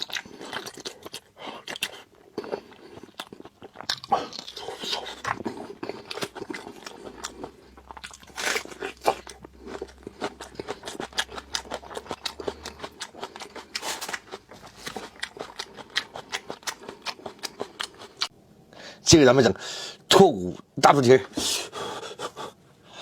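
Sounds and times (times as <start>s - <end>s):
chewing and biting food: 0.0s - 18.4s.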